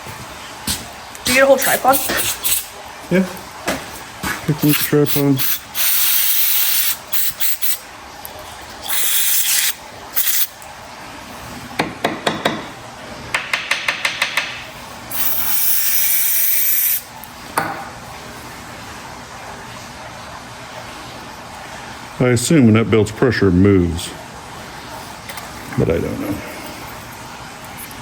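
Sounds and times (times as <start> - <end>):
aerosol spray hissing: 5.1 - 7.8, 15.1 - 17.0.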